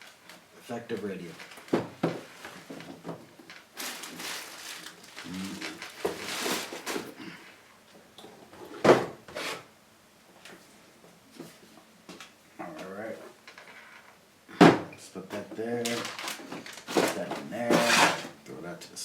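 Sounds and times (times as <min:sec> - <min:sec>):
packaging rustling and bumping: 0:01.2 - 0:07.3, 0:15.3 - 0:18.4.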